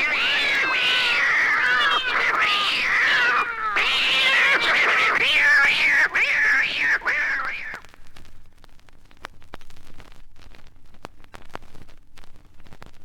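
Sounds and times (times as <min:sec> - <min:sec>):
cat yowling and screeching: 0:00.0 - 0:07.8.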